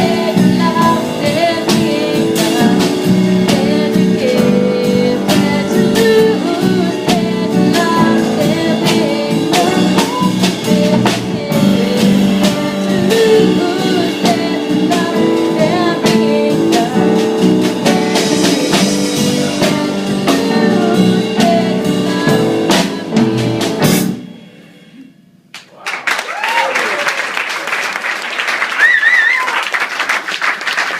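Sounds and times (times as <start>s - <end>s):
person singing: 0.0s - 23.9s
band playing a song: 0.0s - 25.0s
guitar: 0.0s - 25.0s
drum kit: 0.0s - 25.8s.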